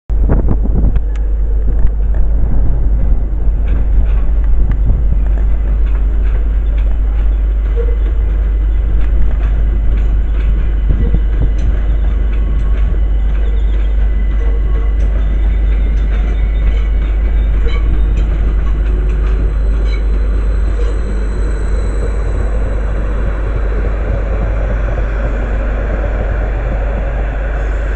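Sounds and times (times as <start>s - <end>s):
train rumbling: 0.1s - 27.9s
sharp rail clicks: 3.6s - 27.3s.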